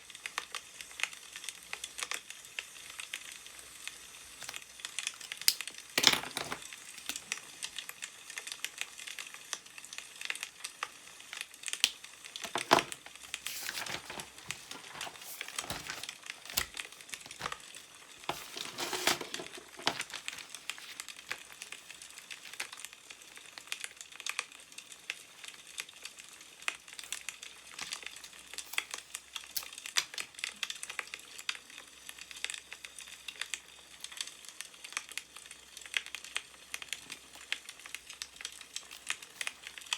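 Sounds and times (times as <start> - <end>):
wood fire crackling: 1.0 - 39.9
newspaper pages rustling: 12.4 - 22.9.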